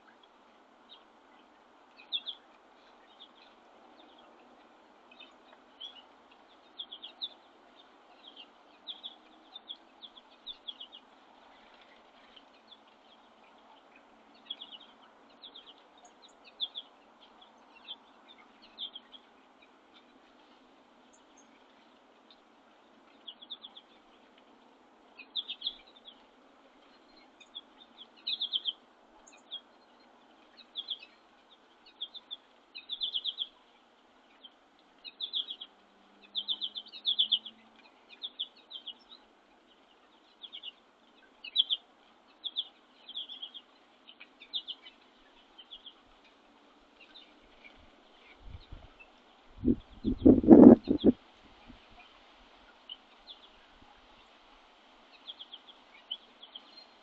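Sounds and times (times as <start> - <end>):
faint background hiss: 0.0 - 57.0
songbird buzzy chirping: 47.0 - 54.4.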